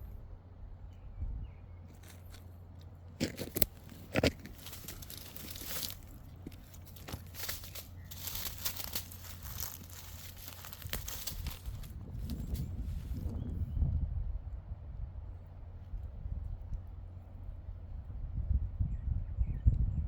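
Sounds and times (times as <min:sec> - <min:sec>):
steady low hum: 0:00.0 - 0:20.0
plant material rustling and tearing: 0:03.2 - 0:13.1.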